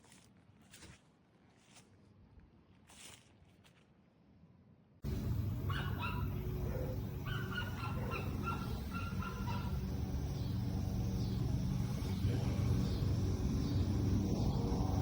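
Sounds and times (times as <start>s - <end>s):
steady low rumble: 5.0s - 15.0s.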